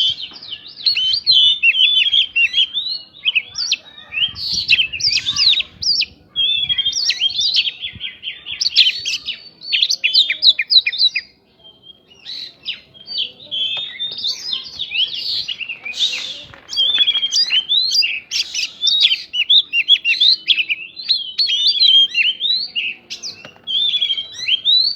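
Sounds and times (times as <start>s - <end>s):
bird singing whistles and chatter: 0.0s - 24.9s.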